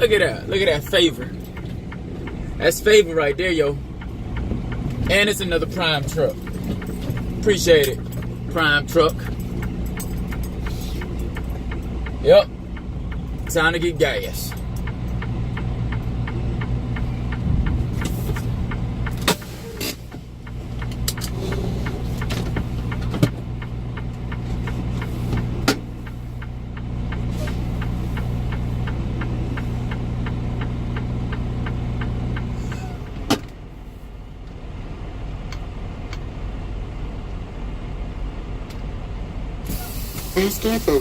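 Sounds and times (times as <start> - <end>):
diesel engine idling: 0.0 - 41.0.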